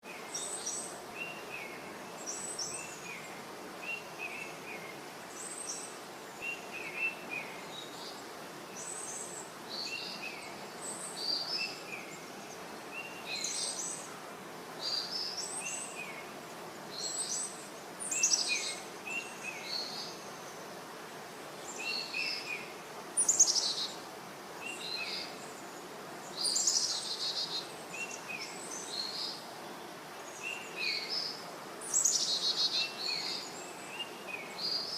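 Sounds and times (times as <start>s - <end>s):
background hiss: 0.0s - 34.9s
birds chirping and trilling: 26.3s - 29.4s.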